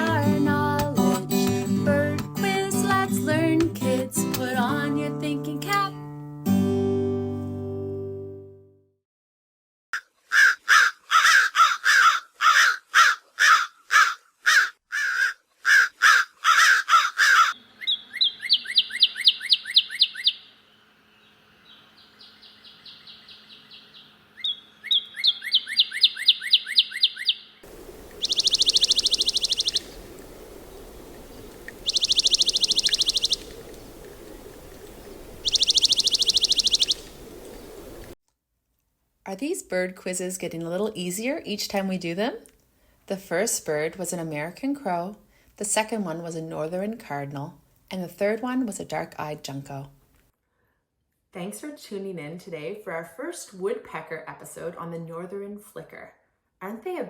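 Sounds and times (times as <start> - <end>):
crow cawing: 10.3 - 18.2, 27.7 - 38.1
bird high trills: 10.3 - 38.2
bird singing slurred whistles: 17.8 - 20.5, 21.7 - 37.9.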